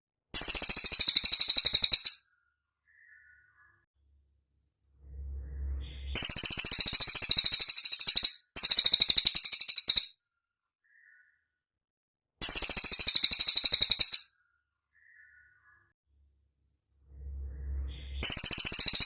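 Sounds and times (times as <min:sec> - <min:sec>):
bird high fast trills: 0:05.4 - 0:10.1, 0:17.7 - 0:19.0.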